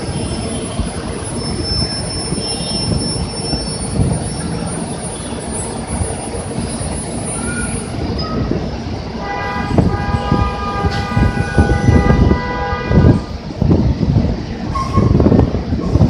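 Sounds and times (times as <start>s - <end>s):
bus engines and traffic rumble: 0.0s - 16.0s
vehicle horn held steadily: 9.2s - 13.2s.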